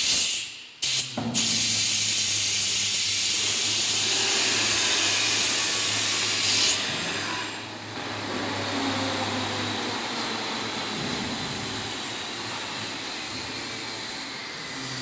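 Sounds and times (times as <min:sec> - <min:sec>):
air hissing out: 0:00.0 - 0:06.8
machinery humming: 0:07.5 - 0:15.0.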